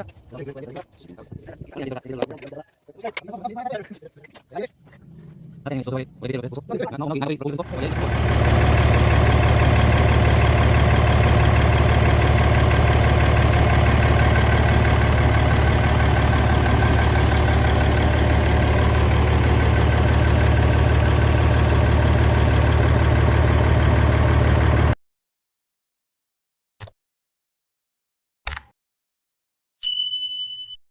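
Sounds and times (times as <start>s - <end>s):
truck diesel engine idling: 7.6s - 25.0s.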